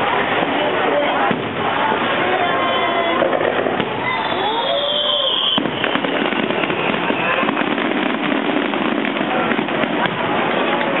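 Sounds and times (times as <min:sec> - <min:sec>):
crowd voices: 0:00.0 - 0:11.0
fireworks crackling: 0:00.0 - 0:11.0
firework whistle: 0:03.8 - 0:10.7.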